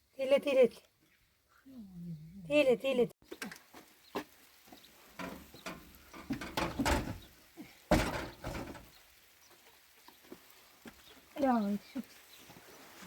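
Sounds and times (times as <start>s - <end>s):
rustling and scraping handling: 3.3s - 11.2s
loud thump: 7.9s - 8.8s.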